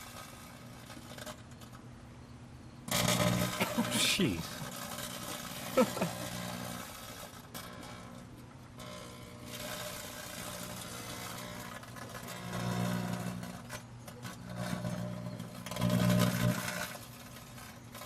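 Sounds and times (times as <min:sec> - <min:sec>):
faint arcing crackle: 0:00.0 - 0:01.9, 0:02.8 - 0:18.0
microwave oven humming: 0:02.2 - 0:17.9.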